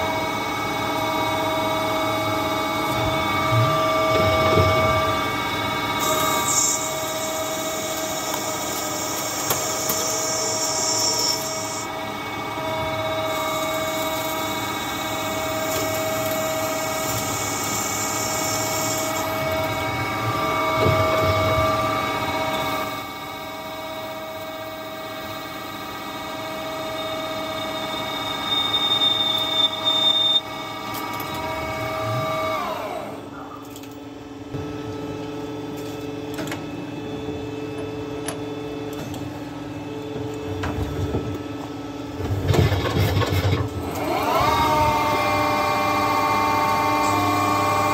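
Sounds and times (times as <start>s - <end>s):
lathe spindle whine: 0.0s - 33.4s, 36.9s - 47.9s
cutting hiss: 6.0s - 11.9s, 16.4s - 19.3s.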